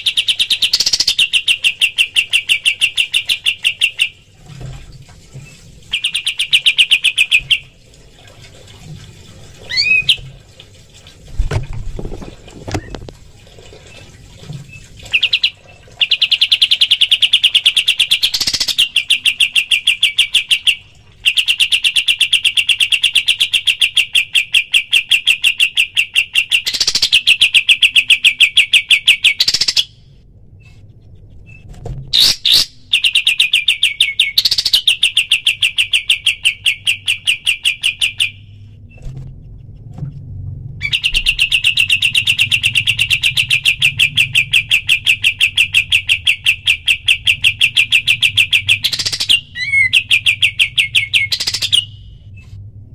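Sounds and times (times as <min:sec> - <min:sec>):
songbird rattling trill: 0:00.0 - 0:04.1, 0:40.8 - 0:51.9.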